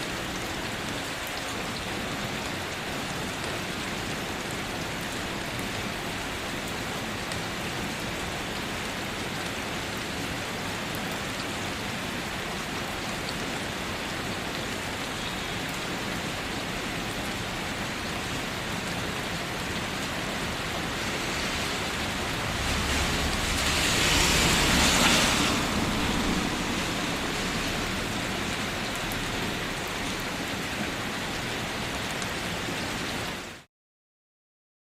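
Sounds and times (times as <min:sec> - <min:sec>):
rain falling: 0:00.0 - 0:33.7
waterfall rushing: 0:00.0 - 0:33.7
deep rumble: 0:21.0 - 0:29.5.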